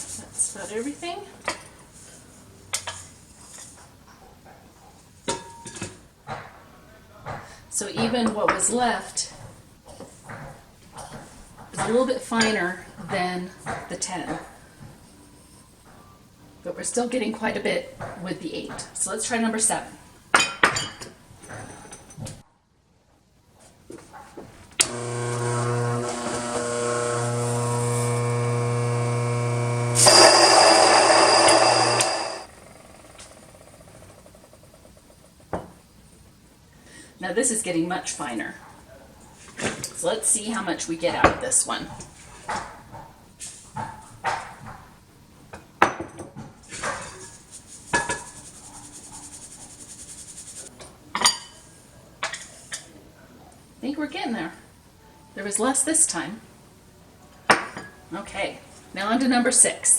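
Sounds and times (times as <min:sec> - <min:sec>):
grain mill motor hum: 0:24.8 - 0:32.5
rough grinding of wheat: 0:24.9 - 0:32.5.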